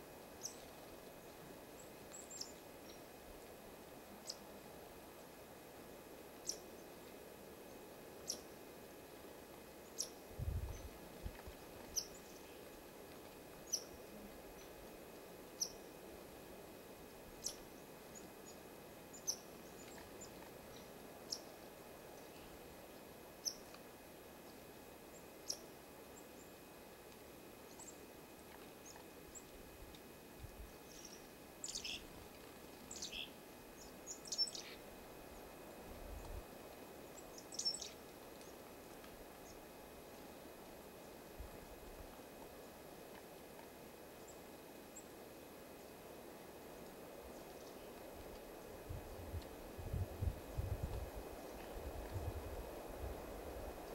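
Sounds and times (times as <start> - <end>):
songbird chirping: 0.4 - 3.1, 4.2 - 4.6, 7.6 - 8.6, 9.8 - 12.8, 13.6 - 16.0, 17.4 - 23.8, 24.4 - 26.7, 27.6 - 28.1, 30.6 - 38.7.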